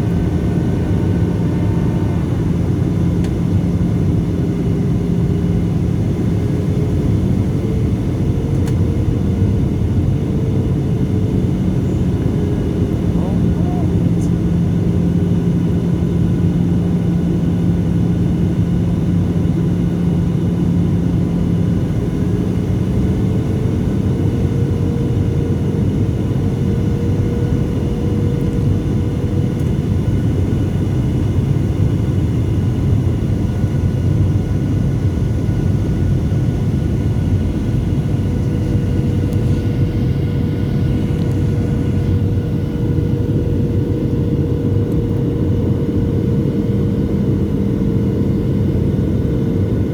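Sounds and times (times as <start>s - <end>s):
jet engines roaring: 0.0s - 6.9s.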